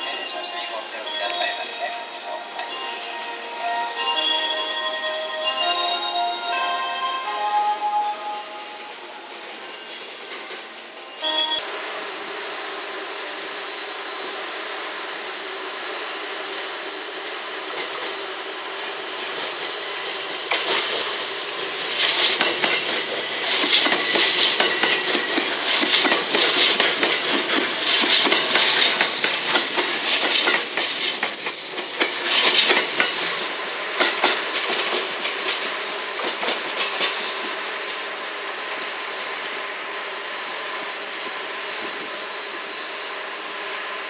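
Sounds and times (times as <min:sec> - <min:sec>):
train wheels clicking over rail joints: 0:18.8 - 0:39.3.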